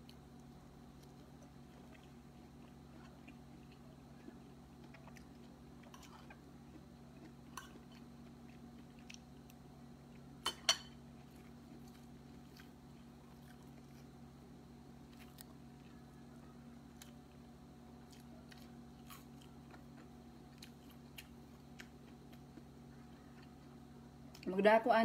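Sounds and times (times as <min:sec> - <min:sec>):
person chewing food: 0:00.0 - 0:14.3, 0:15.0 - 0:24.4
steady low hum: 0:00.0 - 0:25.0.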